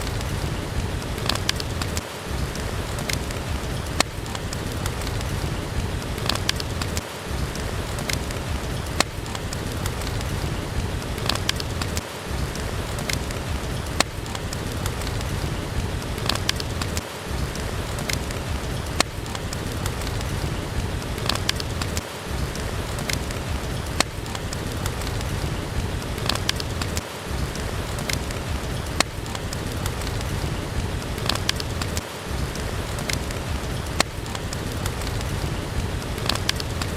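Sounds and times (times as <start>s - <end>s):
steady rain: 0.0s - 36.9s
wood fire crackling: 0.0s - 36.9s.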